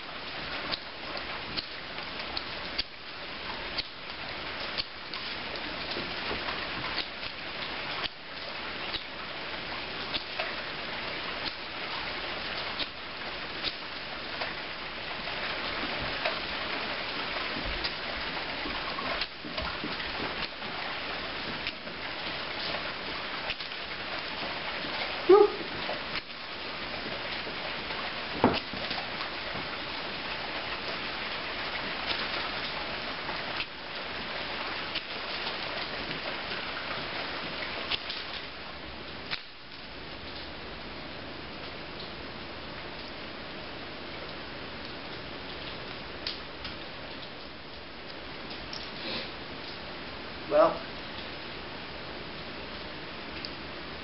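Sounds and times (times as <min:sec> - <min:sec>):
pouring rain: 0:00.0 - 0:54.0
short pitched yelp: 0:25.3 - 0:25.7.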